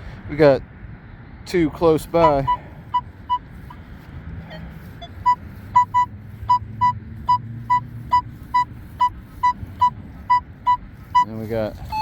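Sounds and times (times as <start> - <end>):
metal detector short beeps: 2.2 - 3.4, 5.0 - 11.3.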